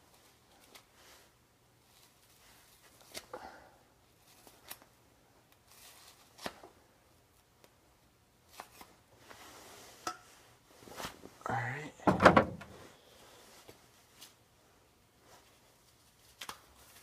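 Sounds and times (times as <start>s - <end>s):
fiberglass rustling and tearing: 5.5s - 6.7s, 15.4s - 17.0s.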